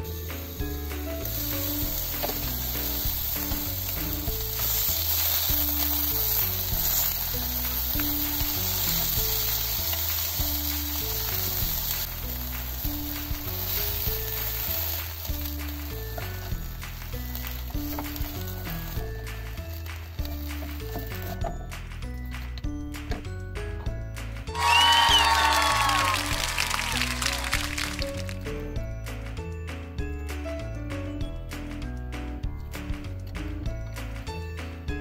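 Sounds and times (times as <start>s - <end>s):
tofu sizzling in a pan: 0.0s - 21.8s, 24.6s - 28.4s.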